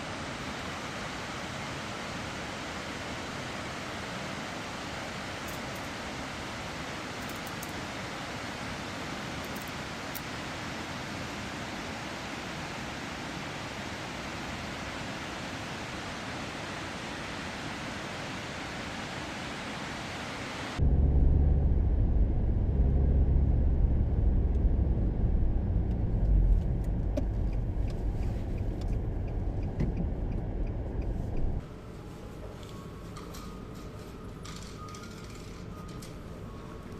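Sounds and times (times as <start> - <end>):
steady rushing noise: 12.9 - 32.4
car engine and road rumble: 20.8 - 36.9.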